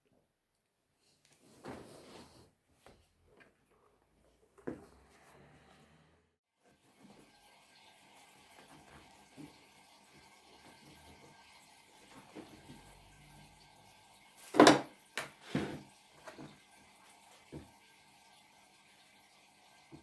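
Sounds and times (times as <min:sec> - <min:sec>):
household objects knocking and clunking: 0:14.5 - 0:16.5.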